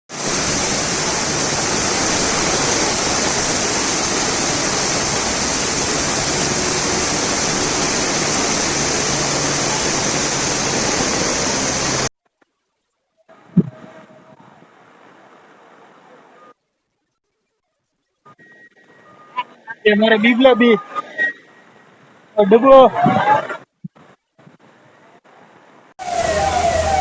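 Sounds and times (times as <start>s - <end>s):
rushing water: 0.1s - 16.5s, 24.4s - 27.0s.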